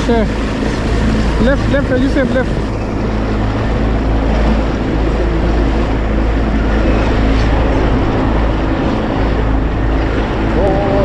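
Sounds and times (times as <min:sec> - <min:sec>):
low engine hum: 0:00.0 - 0:11.0
wind buffeting microphone: 0:00.0 - 0:11.0.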